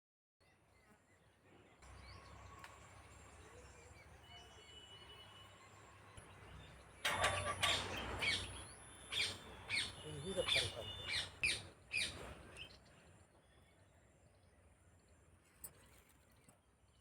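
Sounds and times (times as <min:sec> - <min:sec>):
birds chirping: 0:01.8 - 0:14.5.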